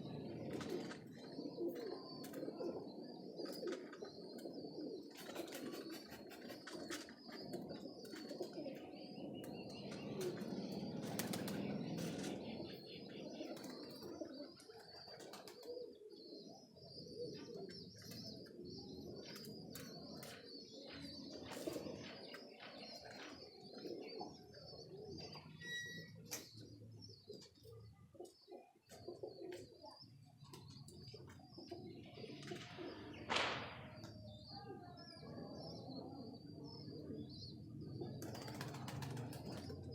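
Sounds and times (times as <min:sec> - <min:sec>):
pigeons cooing: 0:00.0 - 0:39.9
wings flapping: 0:10.2 - 0:12.4, 0:38.2 - 0:39.9.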